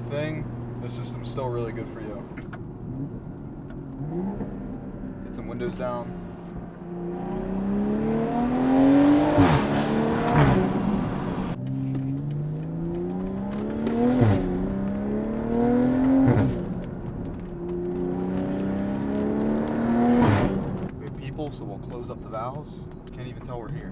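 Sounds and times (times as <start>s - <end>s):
car engine accelerating: 0.0s - 23.9s
exhaust cracks on gear shifts: 0.0s - 23.9s.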